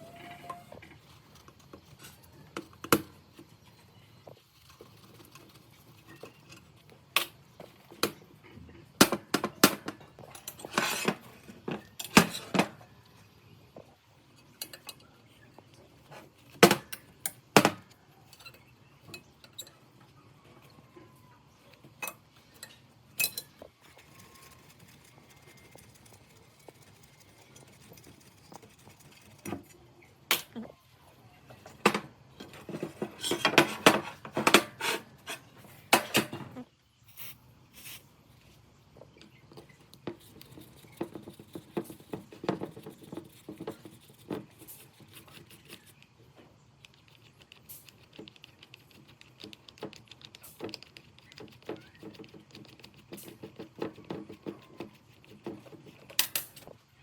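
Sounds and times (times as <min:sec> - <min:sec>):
metal parts and tools clicking: 0:22.0 - 0:23.7, 0:56.0 - 0:56.7.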